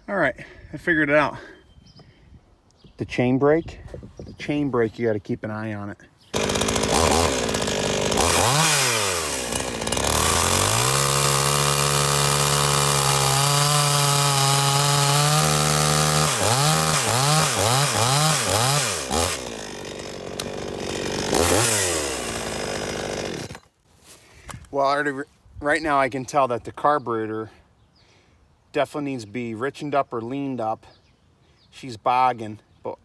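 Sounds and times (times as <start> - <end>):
chainsaw revving: 6.3 - 23.7.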